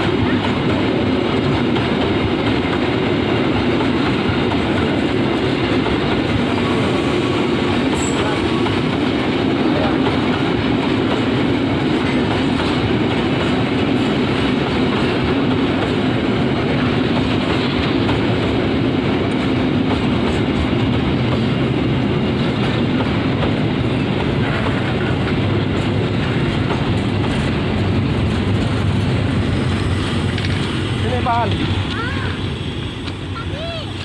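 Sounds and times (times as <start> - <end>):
freight train wheels on rails: 0.0 - 34.0.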